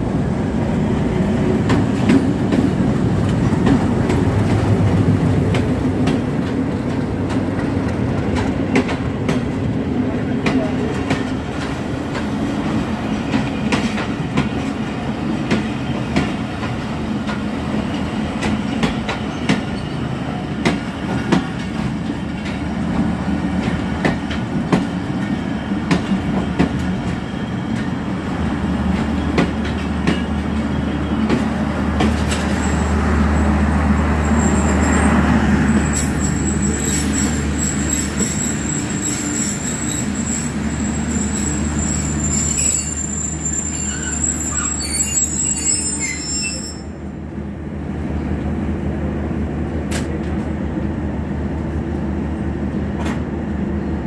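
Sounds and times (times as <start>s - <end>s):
high wheel squeal: 34.2s - 47.0s.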